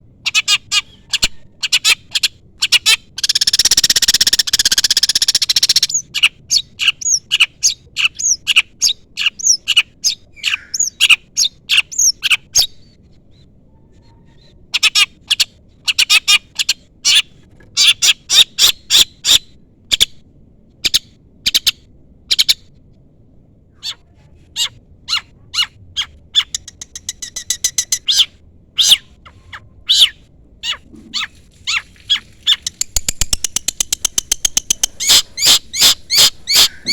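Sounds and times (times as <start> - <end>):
bird fast trill: 0.2 - 12.7, 24.6 - 36.9
shrike chirping: 24.6 - 36.9.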